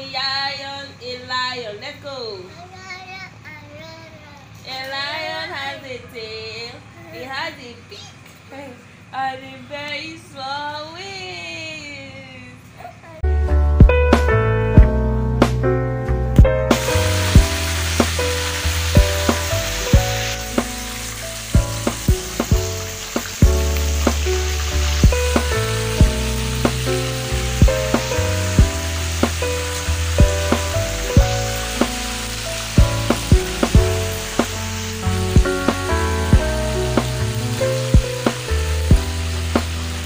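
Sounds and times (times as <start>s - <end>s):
background music with bass and beats: 13.3s - 40.0s
chicken frying in hot oil: 16.7s - 40.0s.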